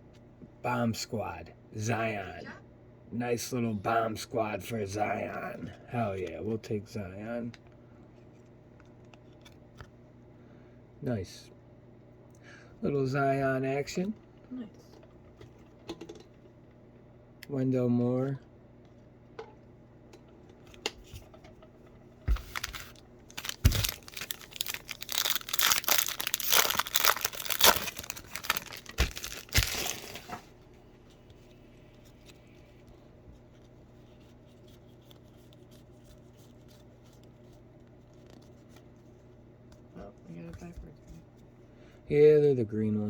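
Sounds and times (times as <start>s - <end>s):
wrapper tearing and crinkling: 22.4s - 30.4s.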